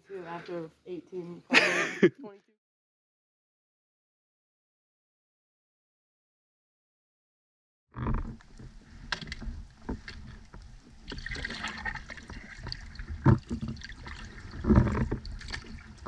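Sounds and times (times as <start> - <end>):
paddles splashing in water: 8.8 - 16.0.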